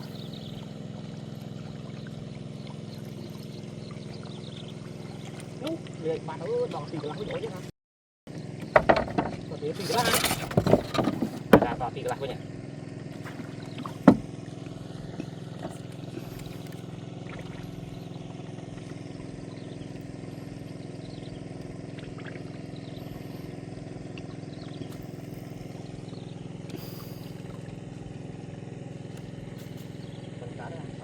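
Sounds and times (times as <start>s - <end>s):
small engine running: 0.0s - 7.6s, 8.3s - 31.0s.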